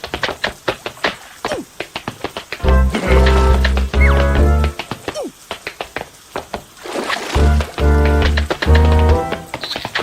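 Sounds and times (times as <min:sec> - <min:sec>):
bouncy music: 0:02.6 - 0:04.9, 0:07.4 - 0:09.6.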